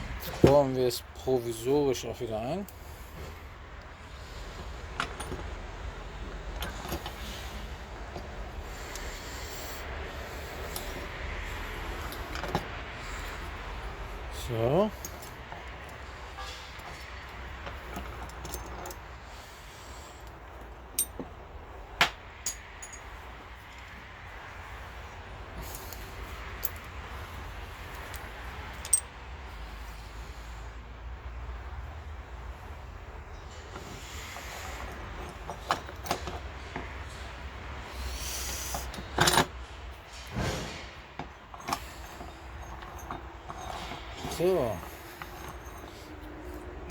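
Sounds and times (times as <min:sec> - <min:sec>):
metal parts clicking and knocking: 0:04.6 - 0:19.1, 0:22.0 - 0:24.0, 0:25.5 - 0:29.1, 0:33.4 - 0:46.9.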